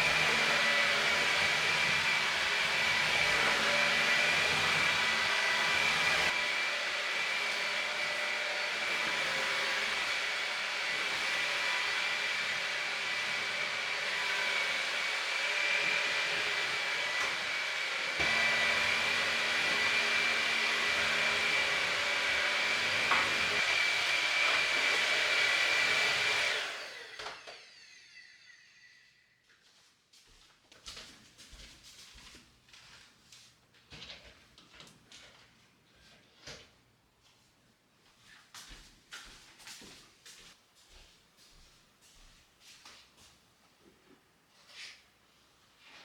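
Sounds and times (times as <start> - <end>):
electric motor whining: 0.0 - 27.8.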